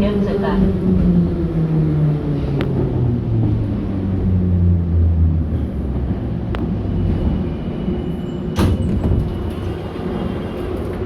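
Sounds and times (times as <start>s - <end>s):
train car rumble and hum: 0.0s - 11.0s
loud clunk: 8.5s - 9.8s.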